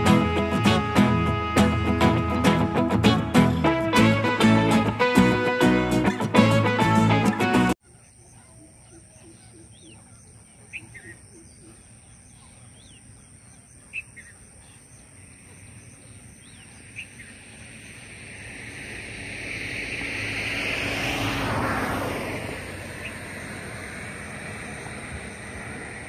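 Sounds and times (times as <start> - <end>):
bird chirps: 7.9 - 18.1
passing vehicle: 15.5 - 26.0.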